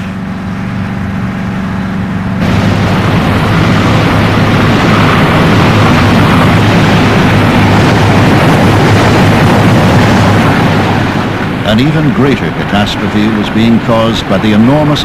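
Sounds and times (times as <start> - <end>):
low steady hum: 0.0 - 15.0
roar of fire: 2.4 - 11.8.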